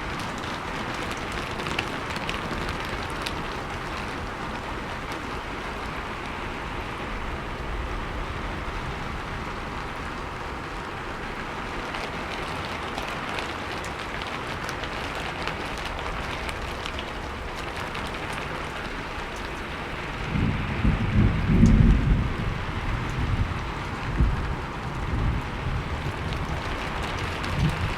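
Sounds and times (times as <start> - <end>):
raindrops pattering on a surface: 0.0 - 27.9
steady rain falling: 0.0 - 27.9
low thunder rumble: 20.0 - 27.9.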